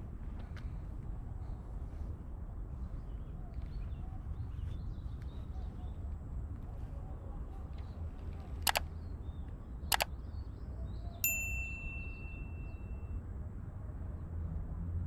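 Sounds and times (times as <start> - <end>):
metallic ding: 11.2 - 12.9.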